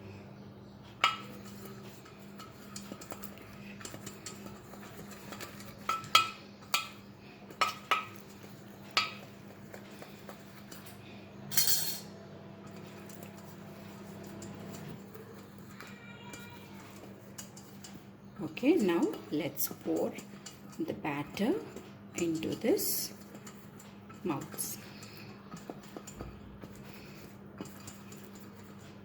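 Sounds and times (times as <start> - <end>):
utensils and molds clinking: 0.8 - 29.0.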